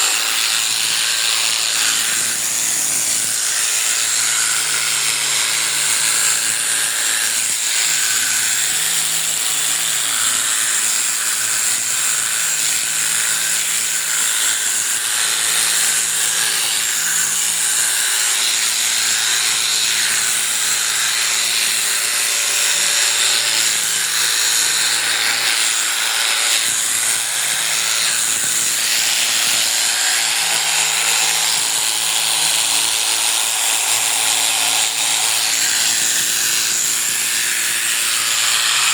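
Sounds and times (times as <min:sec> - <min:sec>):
electric clippers buzzing: 0:00.0 - 0:38.9.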